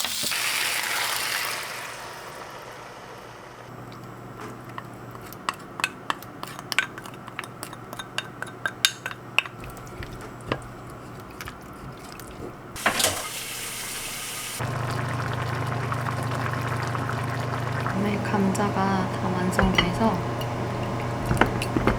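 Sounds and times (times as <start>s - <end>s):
utensils tapping cookware: 4.7s - 10.7s, 19.5s - 21.9s.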